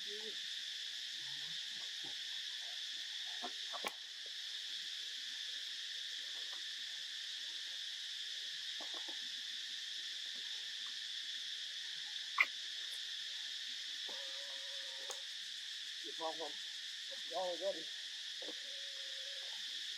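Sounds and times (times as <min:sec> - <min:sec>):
insect chorus drone: 0:00.0 - 0:19.9.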